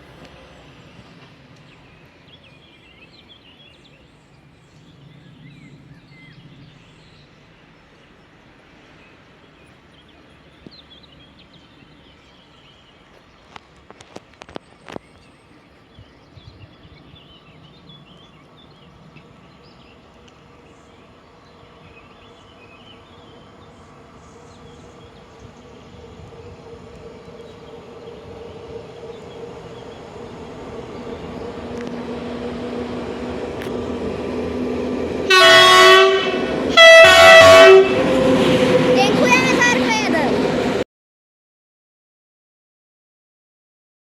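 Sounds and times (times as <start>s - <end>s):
train running noise: 0.0s - 5.0s, 7.3s - 40.8s
train horn blasts: 35.2s - 39.7s.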